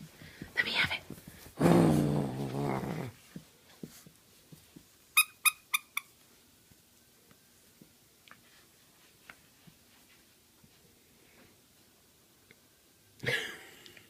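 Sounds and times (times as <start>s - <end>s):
puppy growling: 1.6s - 3.2s.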